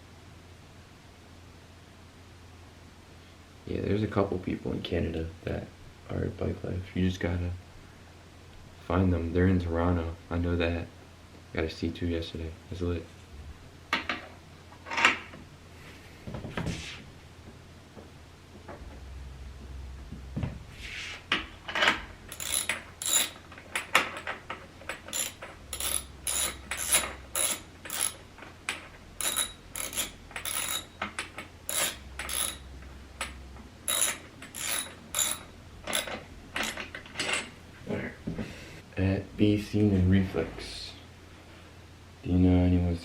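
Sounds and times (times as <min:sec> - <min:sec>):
ratchet clicking: 0:22.3 - 0:24.3, 0:24.9 - 0:37.0.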